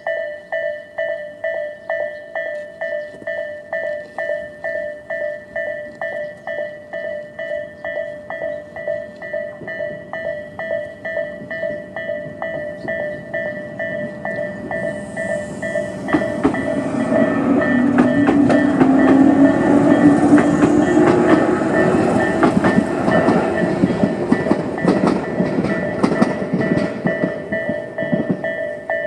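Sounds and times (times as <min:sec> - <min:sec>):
crossing warning bell ringing: 0:00.0 - 0:29.0
train wheels clattering over rail joints: 0:08.3 - 0:29.0.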